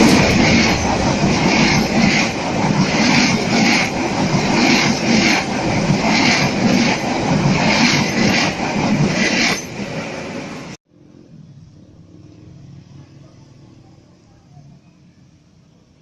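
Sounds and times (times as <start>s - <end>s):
train wheels clattering: 0.0s - 10.1s.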